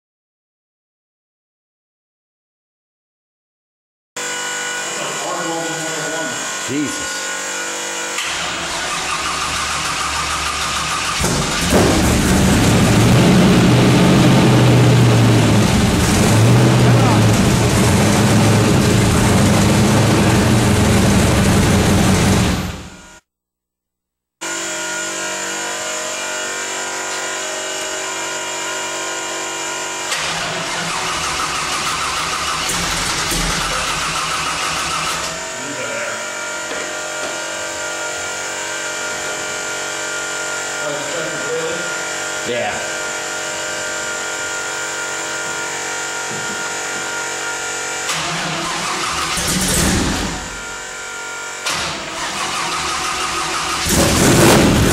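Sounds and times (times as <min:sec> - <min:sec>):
engine cranking and idling: 0:08.2 - 0:23.0, 0:30.1 - 0:35.4, 0:48.0 - 0:50.7, 0:51.6 - 0:54.9.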